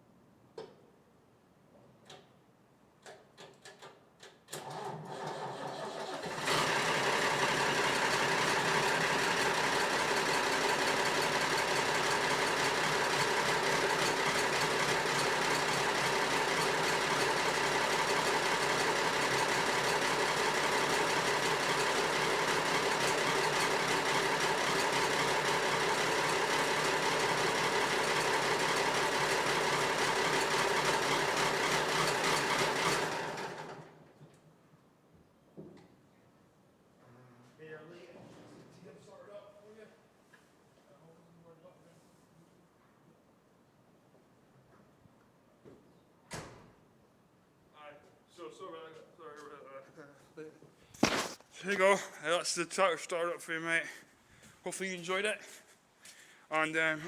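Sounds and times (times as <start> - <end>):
tractor engine cranking and running: 3.0 - 34.0.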